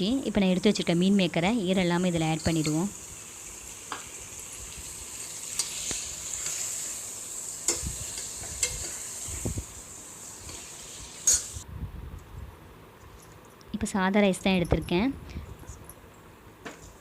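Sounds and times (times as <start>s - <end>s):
food sizzling in hot oil: 0.5s - 11.6s
spoon scraping and knocking pan: 7.7s - 9.4s, 10.5s - 11.6s.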